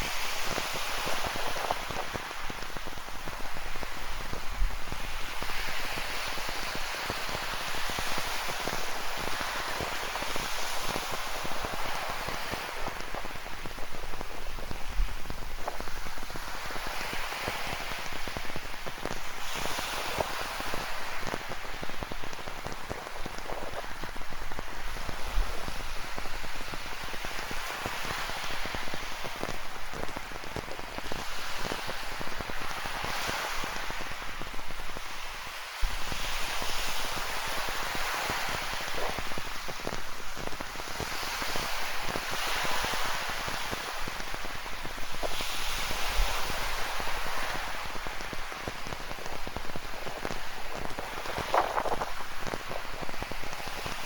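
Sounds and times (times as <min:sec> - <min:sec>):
ocean surf: 0:00.0 - 0:54.0
rain pattering: 0:01.1 - 0:36.0, 0:46.1 - 0:54.0.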